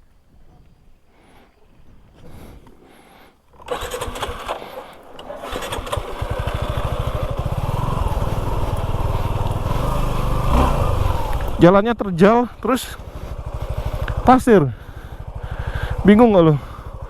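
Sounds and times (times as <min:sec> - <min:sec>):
motorcycle engine running: 0:03.6 - 0:17.0.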